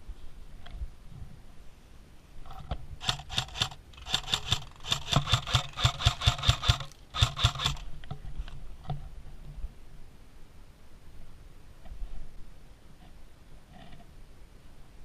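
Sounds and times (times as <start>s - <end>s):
airsoft gun firing bursts: 3.0s - 7.9s.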